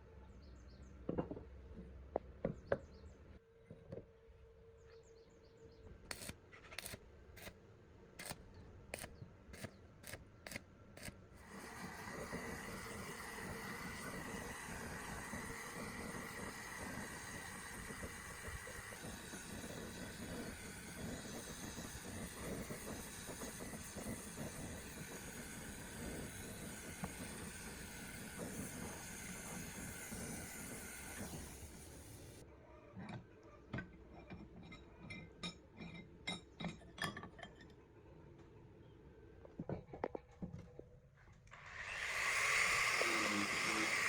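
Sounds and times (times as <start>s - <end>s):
steady running noise: 41.6s - 44.0s.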